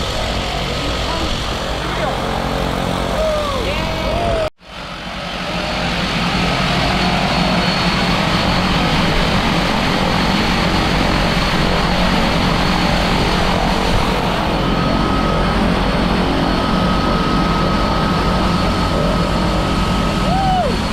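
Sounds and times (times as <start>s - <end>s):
heavy wind noise: 0.0s - 20.9s
propeller aircraft engine droning: 0.0s - 20.9s.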